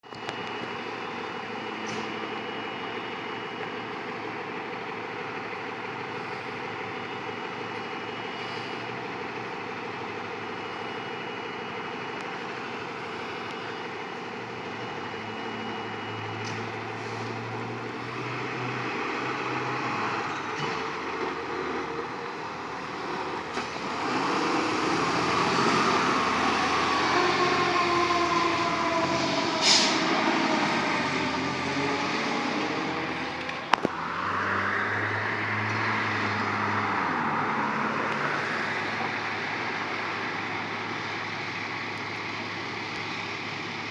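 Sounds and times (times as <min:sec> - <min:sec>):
fire truck engine and road noise: 0:00.0 - 0:43.9
siren sliding down in pitch: 0:22.9 - 0:38.8.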